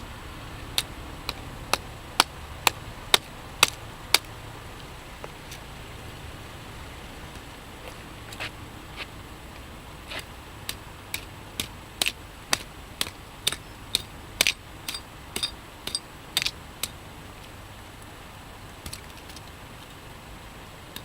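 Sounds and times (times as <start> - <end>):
hatchet striking metal: 13.5 - 16.5.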